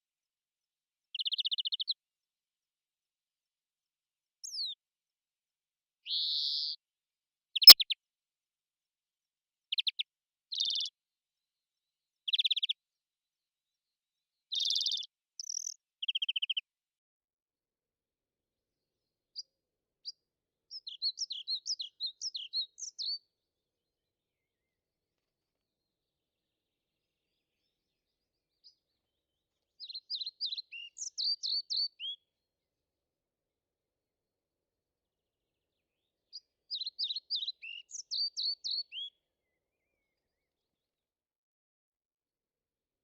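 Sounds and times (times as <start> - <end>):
songbird calls: 1.1 - 2.0, 6.1 - 6.8, 7.6 - 8.0, 9.7 - 10.9, 12.3 - 12.8, 14.5 - 16.6, 20.1 - 23.2, 29.8 - 32.2, 36.4 - 40.4.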